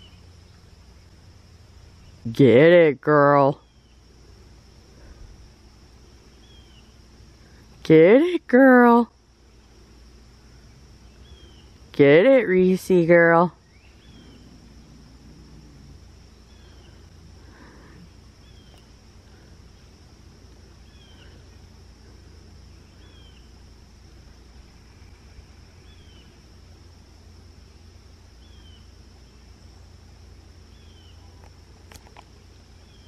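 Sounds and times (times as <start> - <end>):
steady high-pitched hum: 0.0 - 33.0
low rumble: 13.8 - 20.7.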